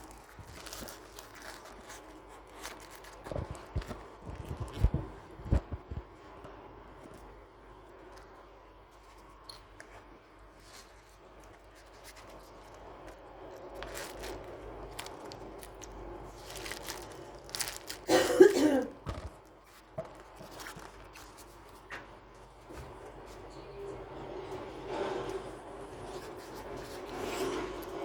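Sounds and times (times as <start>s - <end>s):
paper crinkling and clicking: 0.0s - 6.1s, 8.0s - 22.1s.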